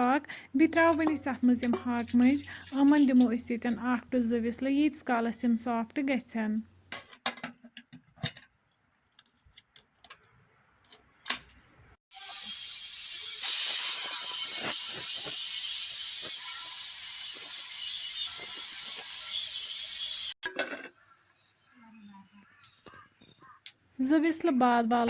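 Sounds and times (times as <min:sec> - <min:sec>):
pressure cooker steam hiss: 0:12.1 - 0:20.4.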